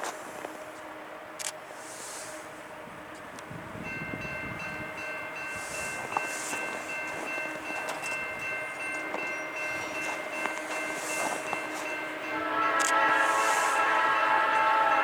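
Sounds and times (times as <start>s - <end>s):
freight train rumbling past: 0.0s - 15.0s
high-pitched steady tones: 4.0s - 15.0s.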